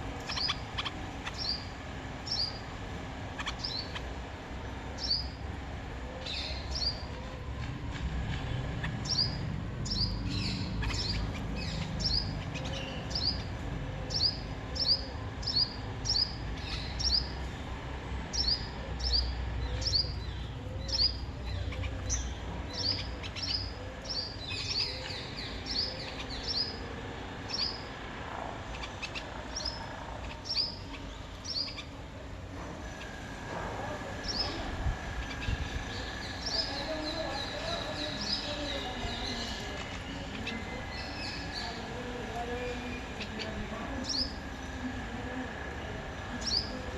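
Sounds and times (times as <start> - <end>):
low outdoor rumble: 0.0 - 46.9
small bird chirping: 0.2 - 2.6.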